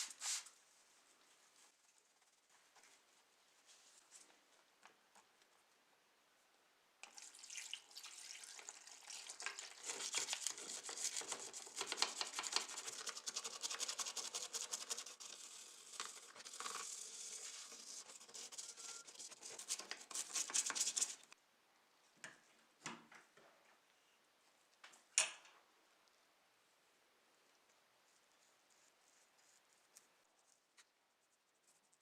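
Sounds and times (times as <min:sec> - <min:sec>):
rapid scrubbing on a surface: 0:09.7 - 0:21.3.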